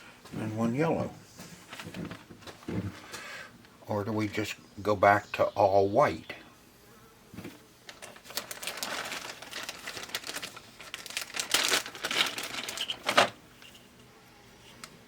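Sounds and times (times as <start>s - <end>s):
plastic parts rustling and clicking: 7.9s - 13.9s.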